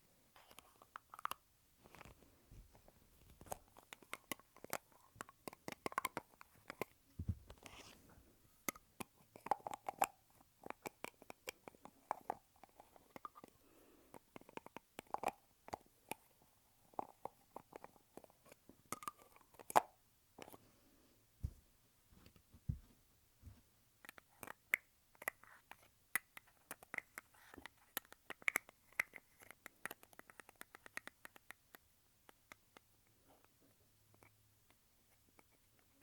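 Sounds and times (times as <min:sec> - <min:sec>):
low thump: 0:07.2 - 0:07.6.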